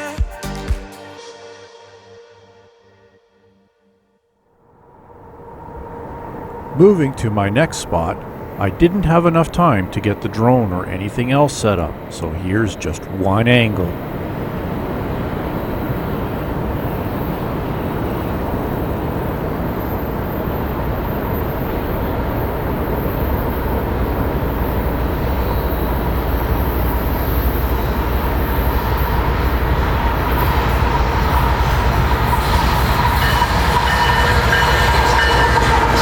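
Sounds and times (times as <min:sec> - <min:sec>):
freight train rumble: 0:05.0 - 0:36.0.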